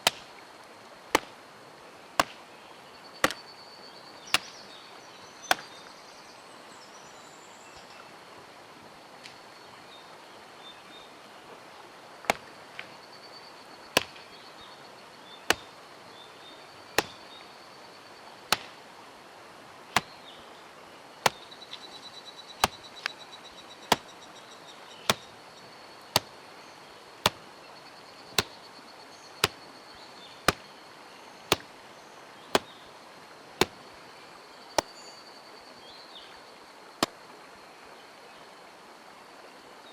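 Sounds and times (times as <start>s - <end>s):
axe chopping wood: 0.0s - 0.3s, 1.1s - 1.4s, 2.2s - 2.5s, 3.2s - 3.5s, 4.3s - 4.7s, 5.4s - 5.9s, 12.2s - 12.6s, 14.0s - 14.3s, 15.5s - 15.8s, 17.0s - 17.4s, 18.5s - 18.8s, 20.0s - 20.2s, 21.2s - 21.6s, 22.6s - 23.2s, 23.8s - 24.1s, 25.0s - 25.4s, 26.1s - 26.4s, 27.2s - 27.5s, 28.3s - 28.6s, 29.4s - 29.6s, 30.4s - 30.7s, 31.5s - 31.8s, 32.5s - 32.8s, 33.6s - 33.8s.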